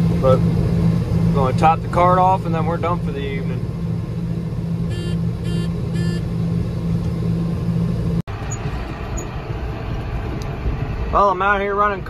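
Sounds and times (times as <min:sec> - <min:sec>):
tractor engine running: 0:00.0 - 0:12.0
short electronic beeps: 0:04.9 - 0:06.2.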